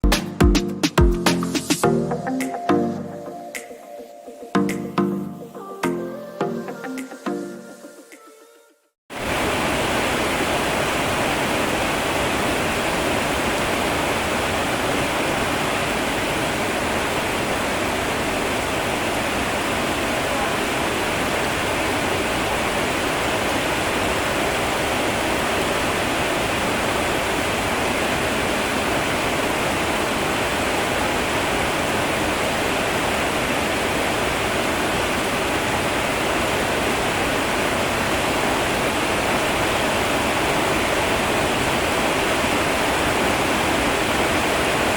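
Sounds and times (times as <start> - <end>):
heavy rain hissing: 9.1 - 44.9.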